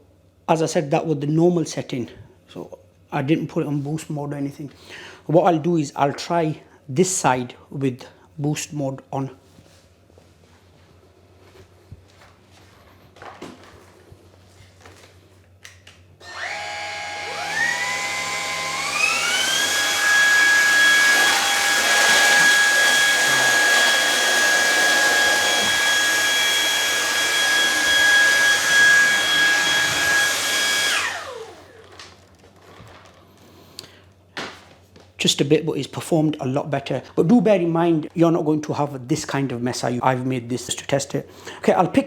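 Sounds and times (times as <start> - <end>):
vacuum motor whine: 16.2 - 32.0.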